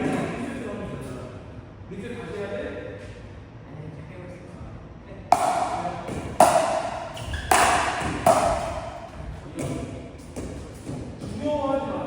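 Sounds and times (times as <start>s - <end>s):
paddles striking pickleball: 5.3s - 11.0s.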